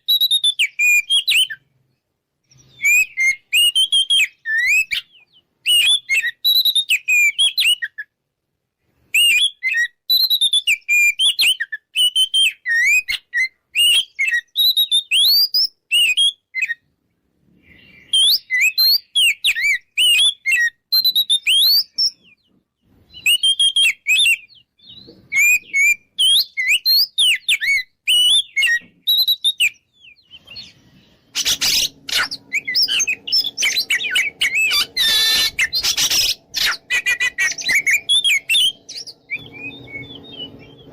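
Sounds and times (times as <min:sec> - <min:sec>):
bird singing whistled phrases: 0:00.0 - 0:01.7, 0:02.5 - 0:08.1, 0:09.1 - 0:16.8, 0:17.7 - 0:22.4, 0:23.1 - 0:40.9
low hum: 0:31.9 - 0:40.9.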